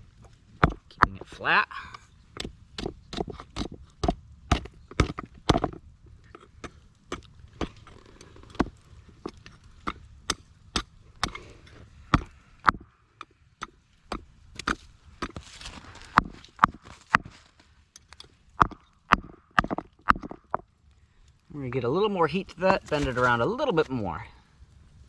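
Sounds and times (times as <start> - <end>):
rock hammer striking steel on rock: 0.6 - 1.3, 8.6 - 11.4, 12.1 - 15.4, 16.0 - 17.3, 18.6 - 20.6.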